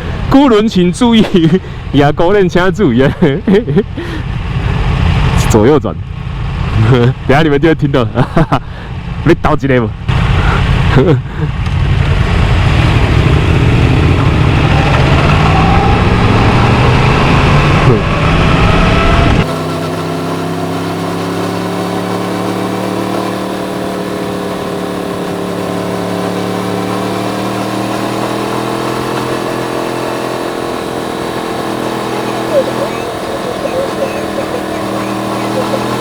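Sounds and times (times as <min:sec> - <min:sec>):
motorcycle engine: 0:10.0 - 0:36.0.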